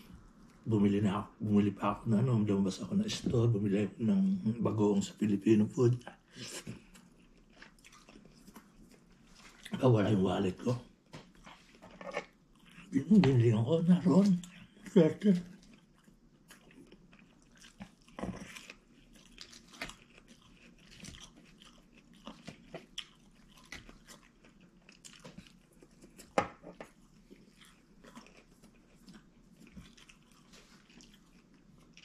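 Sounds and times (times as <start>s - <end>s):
person chewing food: 6.0s - 9.8s, 10.9s - 13.4s, 14.2s - 32.0s.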